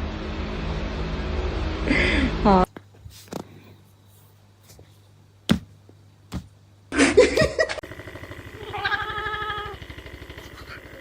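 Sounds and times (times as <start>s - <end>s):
cat meowing: 8.6s - 9.8s.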